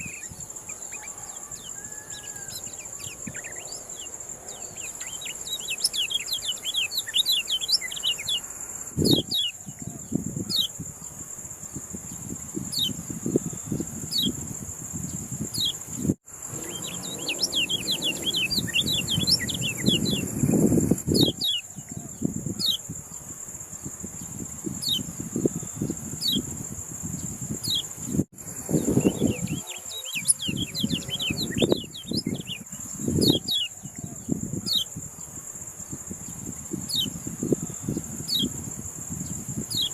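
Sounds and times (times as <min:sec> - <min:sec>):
songbird chirping: 0:00.0 - 0:10.8, 0:15.0 - 0:23.3, 0:27.1 - 0:39.9
high insect whine: 0:00.0 - 0:39.9.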